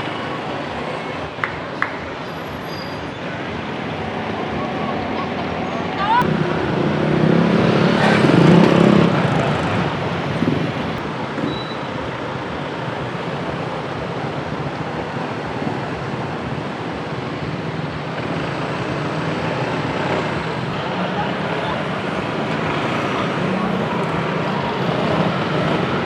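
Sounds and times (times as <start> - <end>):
traffic noise: 0.0 - 26.0
motorbike passing: 4.3 - 11.0.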